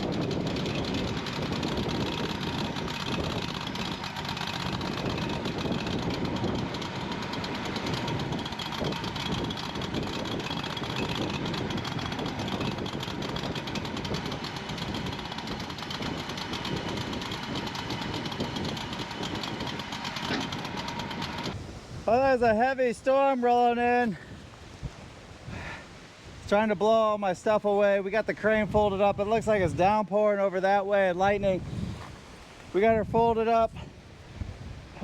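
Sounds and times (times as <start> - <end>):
engine running steadily: 0.0 - 22.2.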